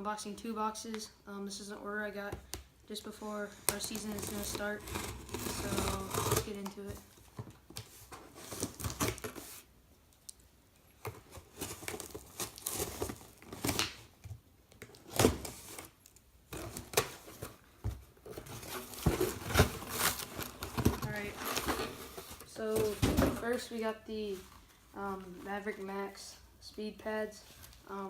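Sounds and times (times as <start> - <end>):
tape tearing: 3.7 - 6.8
plastic wrapping crinkling: 11.0 - 14.1, 18.3 - 25.3.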